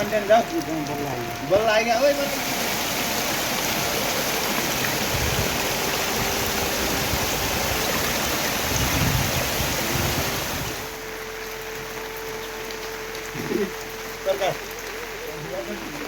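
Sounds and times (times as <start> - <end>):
heavy rain pouring: 0.0 - 16.0
wind gusts on microphone: 3.6 - 10.9.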